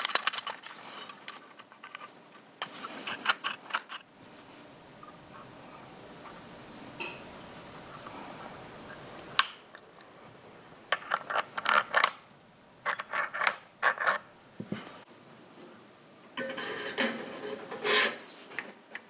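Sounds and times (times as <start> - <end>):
exhaust pipes clinking metal on metal: 5.0 - 9.4.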